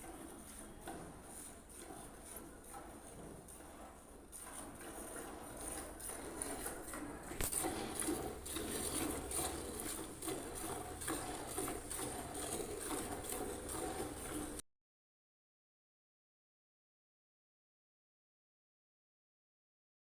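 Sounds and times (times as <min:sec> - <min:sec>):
milk squirting into a pail: 0:00.1 - 0:14.6.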